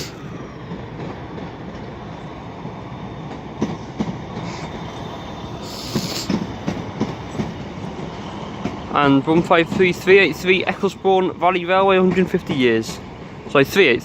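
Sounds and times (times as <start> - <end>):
brief hiss: 0.0 - 0.2, 5.6 - 6.4
train running rumble: 0.0 - 14.0.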